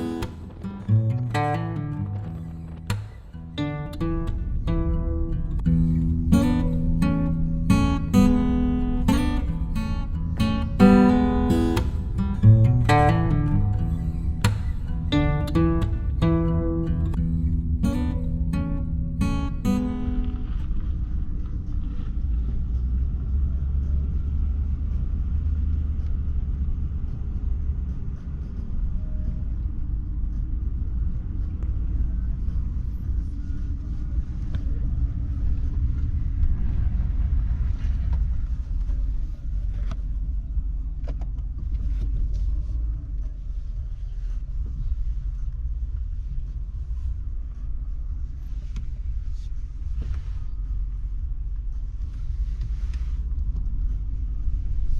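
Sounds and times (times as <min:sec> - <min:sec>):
car road and engine rumble: 0:00.0 - 0:54.9.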